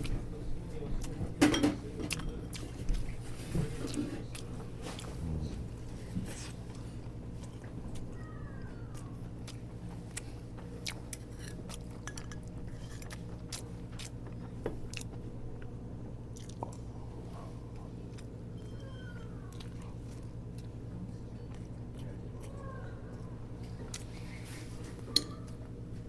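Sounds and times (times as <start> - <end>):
steady low hum: 0.0 - 26.0
person chewing: 2.0 - 8.1, 8.9 - 15.7, 16.3 - 18.4, 19.4 - 22.6, 23.2 - 24.8.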